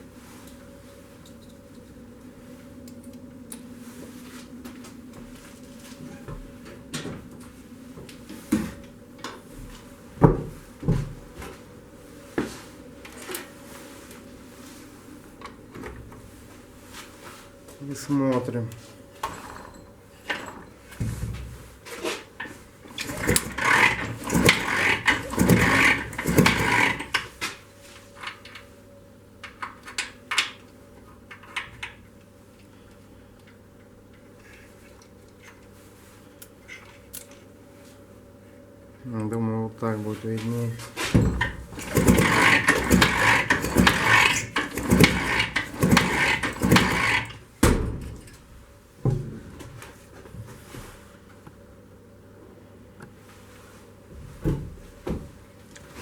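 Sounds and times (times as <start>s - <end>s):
engine knocks and clatter: 23.0s - 27.2s, 41.3s - 47.3s.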